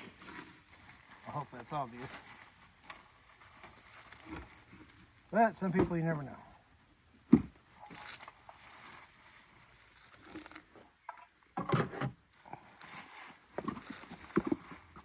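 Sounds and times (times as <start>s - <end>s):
packaging rustling and crinkling: 0.0s - 6.1s, 7.2s - 10.8s, 12.4s - 15.0s.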